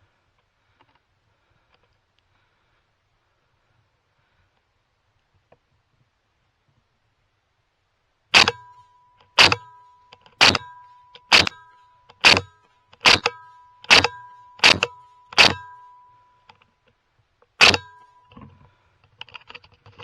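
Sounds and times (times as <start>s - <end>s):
suppressed rifle shots: 8.4s - 8.7s, 9.4s - 9.7s, 10.4s - 11.6s, 12.2s - 15.8s, 17.6s - 18.0s
faint steady high tone: 8.5s - 17.0s, 17.7s - 18.9s.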